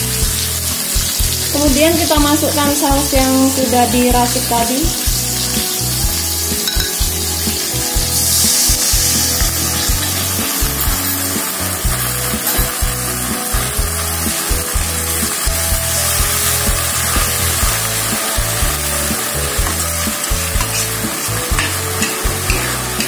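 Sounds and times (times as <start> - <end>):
sauce sizzling in hot oil: 0.0 - 23.0
metal spatula stirring in wok: 6.6 - 23.0.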